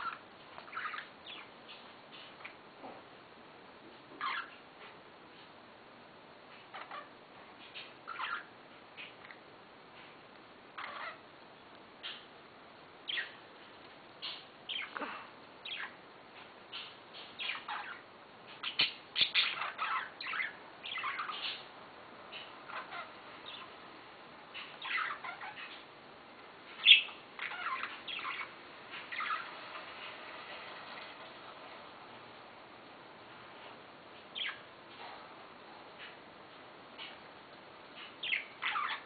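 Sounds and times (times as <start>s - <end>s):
budgerigars chirping: 0.0s - 2.6s, 4.2s - 4.6s, 6.7s - 7.1s, 7.7s - 9.2s, 10.8s - 11.2s, 13.1s - 13.4s, 14.2s - 15.0s, 15.6s - 16.0s, 16.7s - 21.7s, 22.3s - 23.8s, 24.5s - 25.9s, 26.7s - 31.3s, 34.3s - 34.7s, 38.0s - 39.0s.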